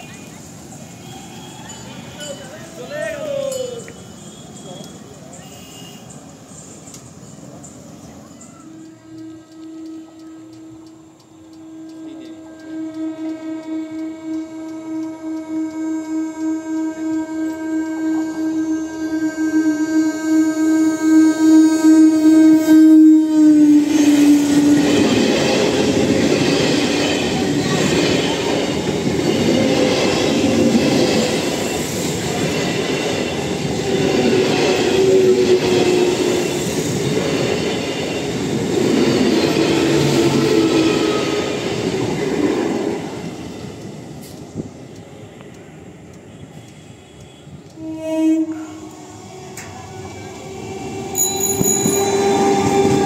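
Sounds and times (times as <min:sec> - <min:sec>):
train horn blast: 0:08.6 - 0:37.7, 0:39.5 - 0:41.8, 0:46.3 - 0:53.0
train wheels rumbling and clattering: 0:23.6 - 0:53.0.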